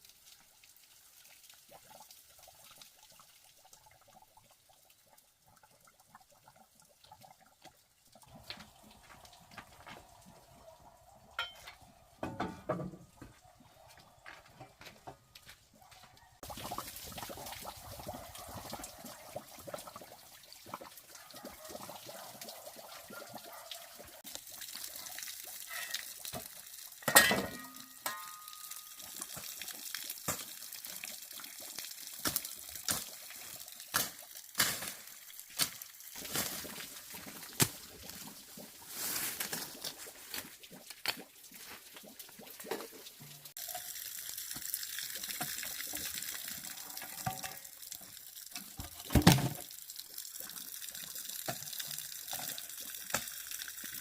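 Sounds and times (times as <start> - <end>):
water trickling and pouring: 0.0 - 54.0.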